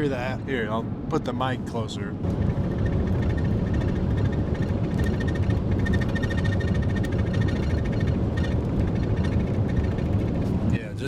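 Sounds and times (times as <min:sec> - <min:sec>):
truck road and engine rumble: 0:00.0 - 0:11.0
high rattling squeak: 0:02.7 - 0:10.2.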